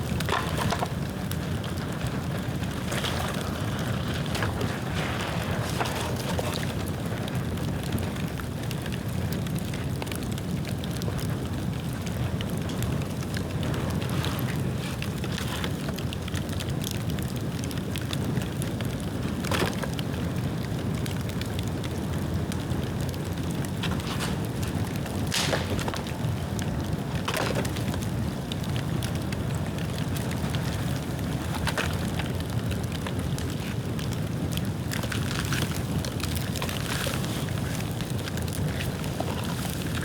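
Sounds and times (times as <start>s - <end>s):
bamboo popping: 0.0s - 6.8s, 23.4s - 29.0s
bonfire burning and crackling: 0.0s - 40.0s.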